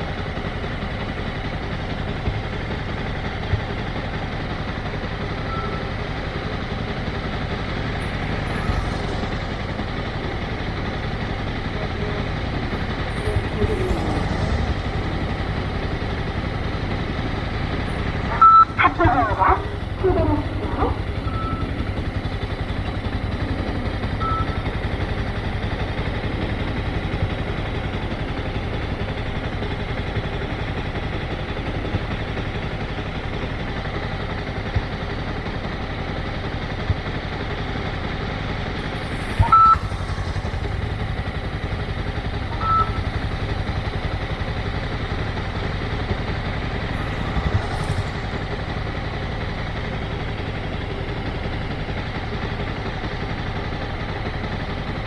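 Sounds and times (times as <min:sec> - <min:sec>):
motorcycle engine running: 0:00.0 - 0:55.0
short high beeps: 0:12.6 - 0:16.2, 0:18.2 - 0:18.8, 0:38.8 - 0:41.0, 0:42.5 - 0:43.1.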